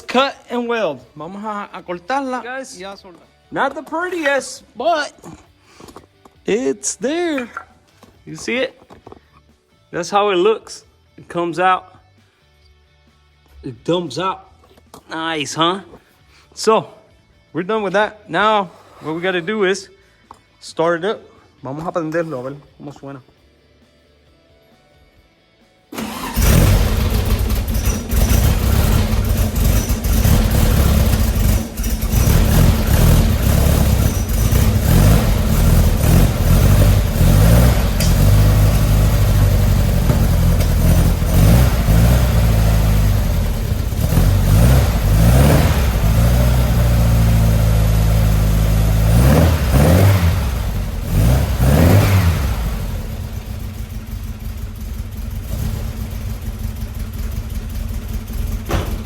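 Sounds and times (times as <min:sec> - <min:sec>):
engine starting and revving: 0:25.9 - 0:57.1.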